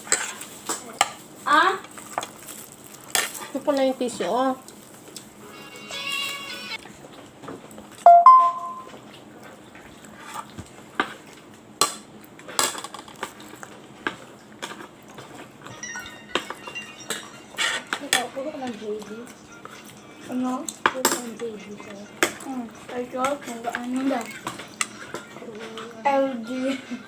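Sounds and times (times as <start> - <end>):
dishes and cutlery clinking: 14.6 - 27.0.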